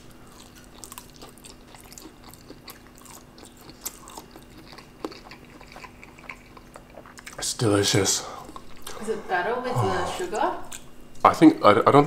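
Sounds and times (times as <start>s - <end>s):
person chewing food: 0.0s - 9.0s, 10.6s - 11.2s.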